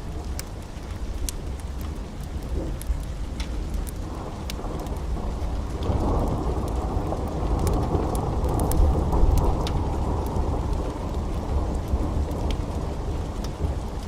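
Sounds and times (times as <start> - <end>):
heavy rain falling: 0.0 - 14.0
low thunder rumble: 4.0 - 14.0.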